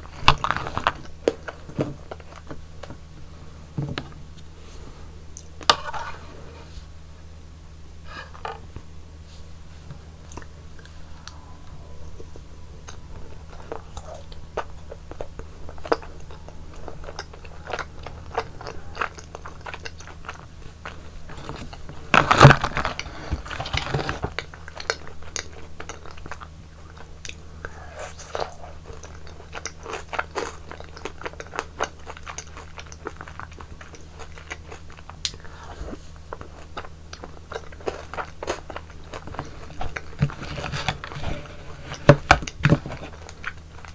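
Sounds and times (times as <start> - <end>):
chewing frozen yogurt: 0.0 - 3.3, 9.6 - 43.9
low hum: 0.0 - 24.8.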